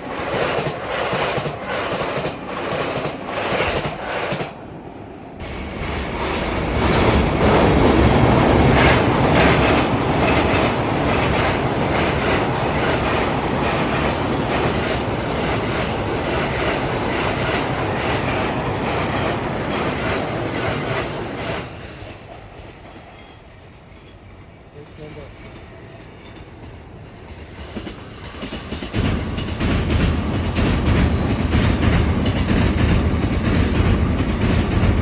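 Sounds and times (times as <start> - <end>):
wheels clacking over rail joints: 7.6 - 21.8, 27.6 - 35.0
high wheel squeal: 14.6 - 18.8, 20.4 - 22.3.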